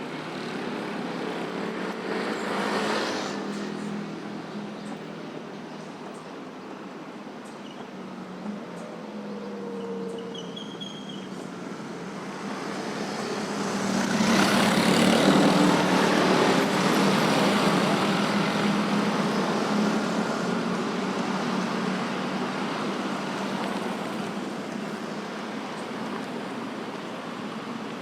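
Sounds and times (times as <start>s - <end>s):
motorcycles passing: 0.0s - 6.0s, 11.5s - 28.0s
cars passing: 0.0s - 28.0s
trucks passing: 0.0s - 28.0s.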